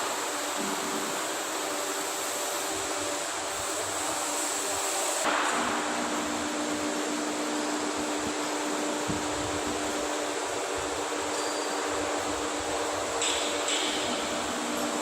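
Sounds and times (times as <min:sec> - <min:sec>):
machine drone and hum: 0:05.2 - 0:15.0.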